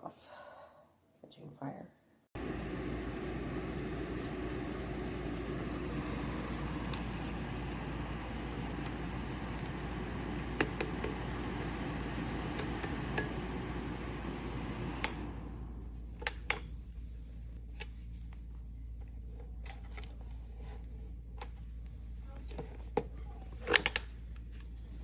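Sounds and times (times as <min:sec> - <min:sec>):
fan winding down: 0:02.4 - 0:17.2
low hum: 0:02.4 - 0:17.7
fan heater blowing air: 0:02.4 - 0:25.0.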